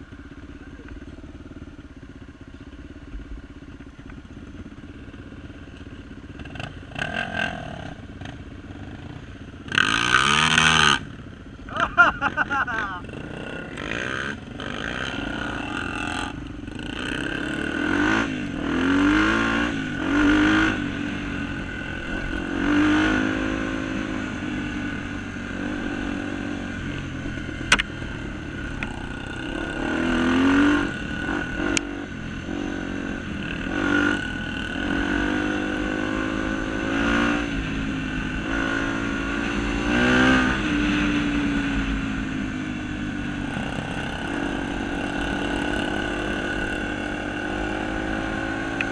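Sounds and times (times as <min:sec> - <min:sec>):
motorcycle engine revving: 0:00.0 - 0:48.9
sharp click: 0:27.7 - 0:27.9.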